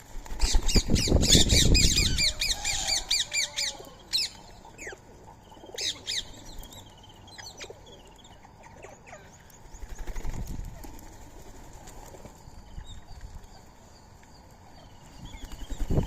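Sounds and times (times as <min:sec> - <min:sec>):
wings flapping: 0:00.0 - 0:03.0, 0:09.7 - 0:12.5, 0:15.3 - 0:16.0
parakeets calling: 0:00.4 - 0:10.1.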